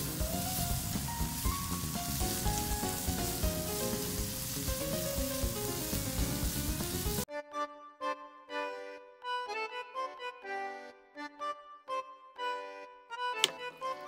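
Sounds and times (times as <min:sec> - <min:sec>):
food sizzling in a frying pan: 0:00.0 - 0:07.2.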